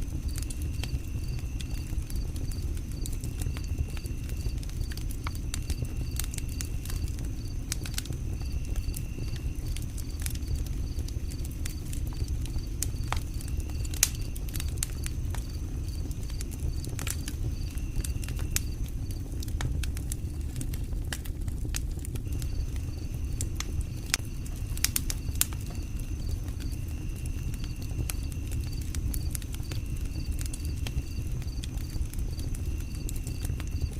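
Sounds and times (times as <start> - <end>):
campfire crackling: 0.0 - 33.9
low steady rumble: 0.0 - 33.9.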